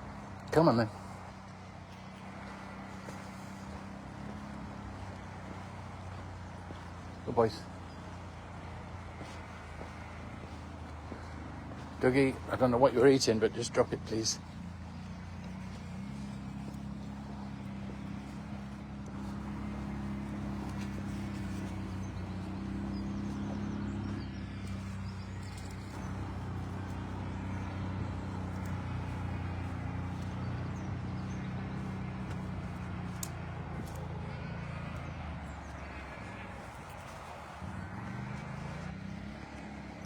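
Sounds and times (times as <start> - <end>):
engine running at low revs: 0.0 - 40.0.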